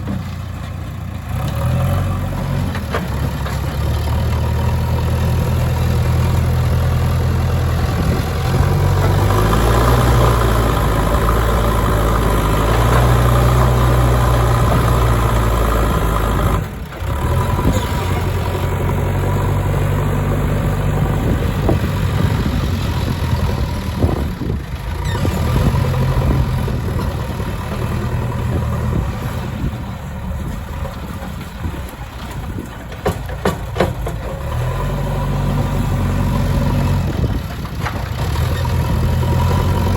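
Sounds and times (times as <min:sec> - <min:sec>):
diesel engine under load: 0:00.0 - 0:39.9
sharp knocks: 0:33.0 - 0:34.2.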